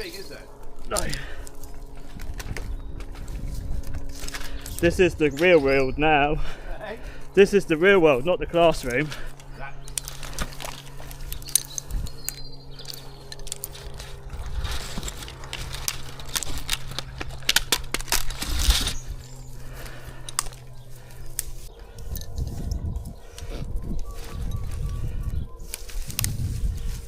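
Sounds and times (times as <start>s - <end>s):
low engine hum: 0.0s - 27.0s
pine branches rustling: 0.0s - 27.0s
climbing hardware clinking: 8.8s - 19.0s.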